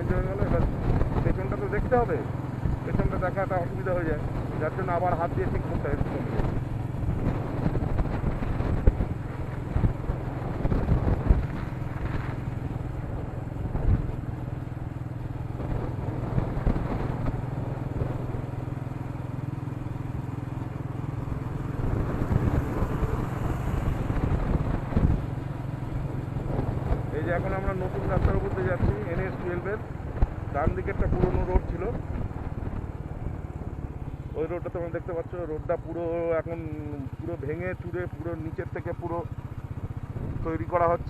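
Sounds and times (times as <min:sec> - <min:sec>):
wind noise on microphone: 0:00.0 - 0:03.2, 0:04.1 - 0:18.7, 0:20.9 - 0:34.4, 0:39.6 - 0:41.0
motorcycle engine running: 0:00.0 - 0:41.0
road rumble: 0:00.0 - 0:41.0.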